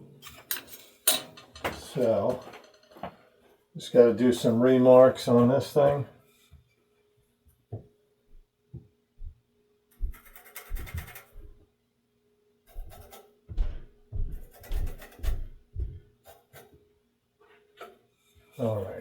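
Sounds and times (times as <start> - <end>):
pencil scratching on wood: 10.1 - 11.4, 12.7 - 13.4, 14.3 - 15.6.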